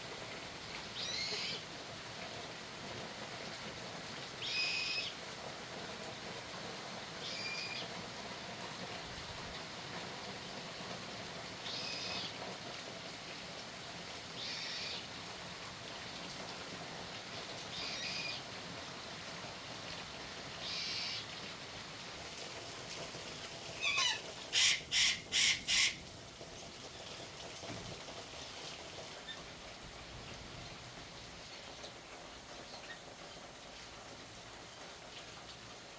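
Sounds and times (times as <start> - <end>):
birds raspy calls: 20.6 - 21.3, 23.8 - 26.0
loud harsh bird calls: 20.6 - 21.3, 23.8 - 26.0.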